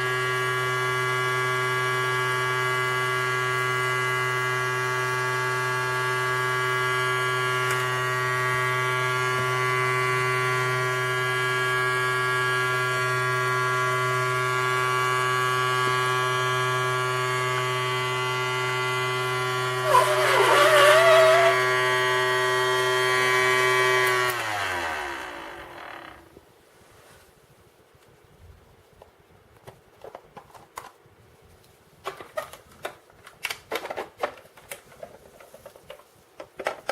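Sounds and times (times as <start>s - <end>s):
small electric motor humming: 0.0s - 26.4s.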